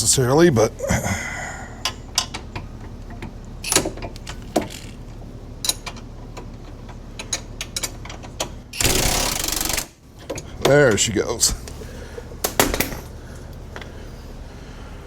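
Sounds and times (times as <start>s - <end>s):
tools clicking and knocking: 1.8s - 5.0s, 5.6s - 10.8s
impact wrench hammering: 8.8s - 10.0s.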